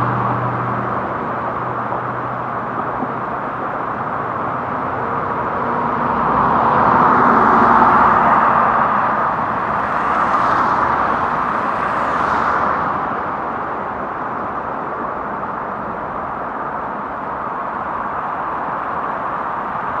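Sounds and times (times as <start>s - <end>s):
tyre swishes of passing vehicles: 0.0s - 14.8s.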